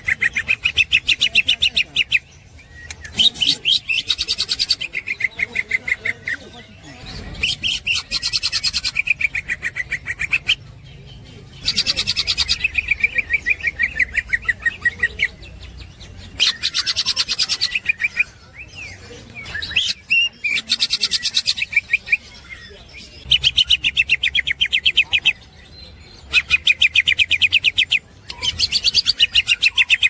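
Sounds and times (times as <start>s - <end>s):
bird chattering: 0.0s - 30.0s.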